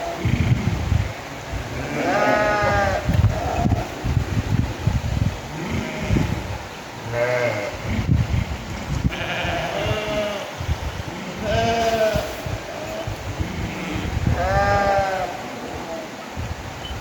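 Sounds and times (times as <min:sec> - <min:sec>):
sheep bleating: 0:01.8 - 0:03.6, 0:07.1 - 0:07.8, 0:09.1 - 0:10.5, 0:11.2 - 0:15.4.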